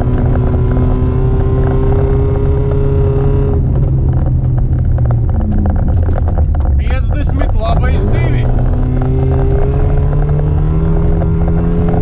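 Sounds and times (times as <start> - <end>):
gravel rattling against underside: 0.0 - 12.0
car engine revving hard: 6.8 - 12.0.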